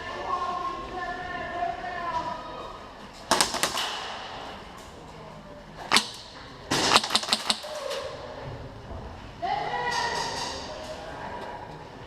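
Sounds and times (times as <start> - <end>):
airsoft guns firing: 3.3 - 4.5, 5.9 - 8.0.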